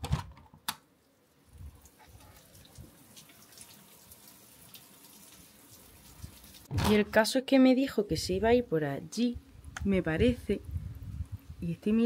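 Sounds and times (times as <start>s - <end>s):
rain falling: 1.4s - 6.7s.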